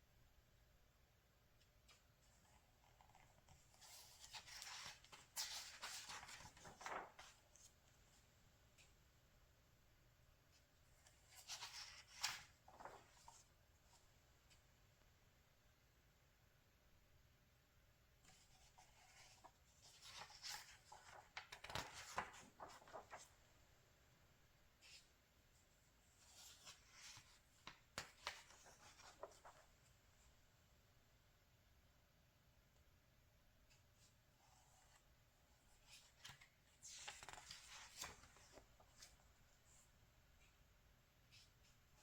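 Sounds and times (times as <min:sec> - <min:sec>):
magazine pages turning: 0:01.9 - 0:07.8, 0:11.0 - 0:13.5, 0:18.3 - 0:23.4, 0:26.2 - 0:29.8, 0:35.8 - 0:39.2.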